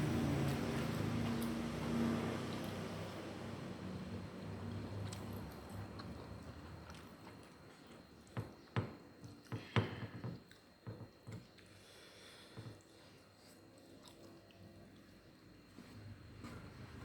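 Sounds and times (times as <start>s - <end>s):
wet chewing smacks and clicks: 4.9s - 8.4s.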